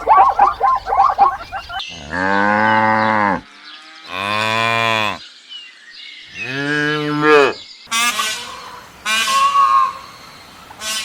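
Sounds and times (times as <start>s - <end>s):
cow mooing: 1.9s - 3.4s.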